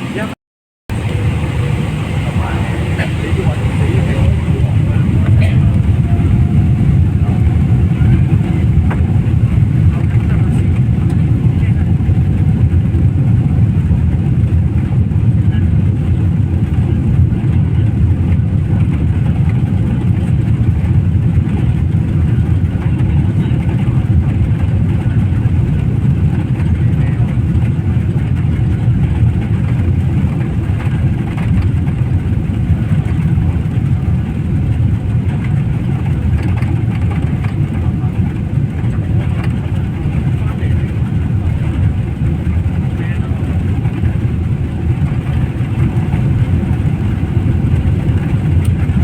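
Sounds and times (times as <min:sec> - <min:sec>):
faint voices: 0:00.0 - 0:12.2, 0:21.5 - 0:28.0, 0:32.9 - 0:49.0
vehicle engine rumble: 0:00.0 - 0:49.0.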